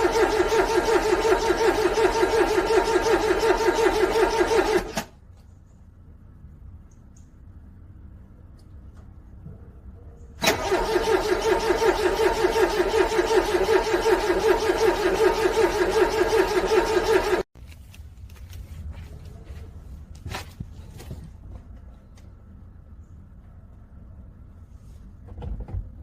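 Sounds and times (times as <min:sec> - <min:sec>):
car engine cranking on starter: 0:00.0 - 0:05.2, 0:10.4 - 0:17.5.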